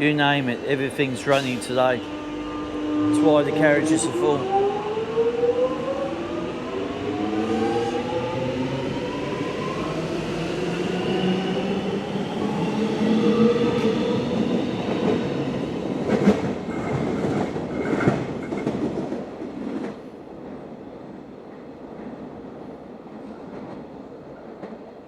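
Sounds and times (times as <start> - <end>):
train pulling away with whine: 0.0 - 17.6.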